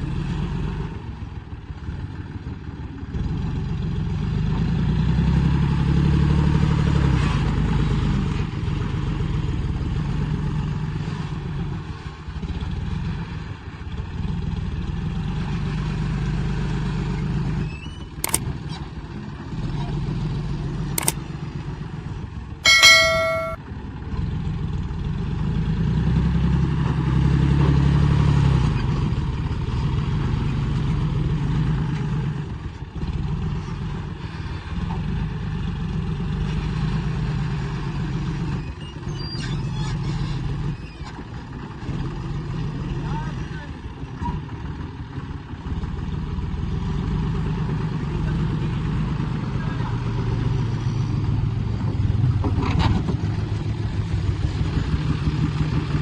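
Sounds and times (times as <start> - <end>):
loud ringing metallic clang: 22.6 - 23.6
sharp knocks: 22.6 - 23.6.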